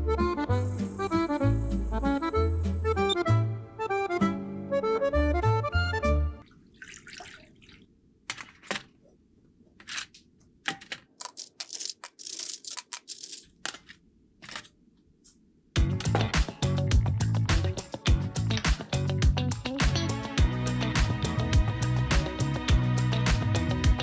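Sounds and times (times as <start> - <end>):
accordion music: 0.0 - 6.4, 15.8 - 24.0.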